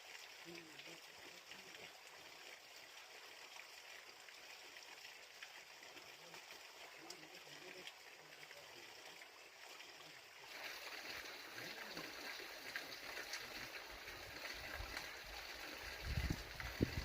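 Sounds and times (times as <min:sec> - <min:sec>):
mountain stream rushing: 0:10.5 - 0:17.0.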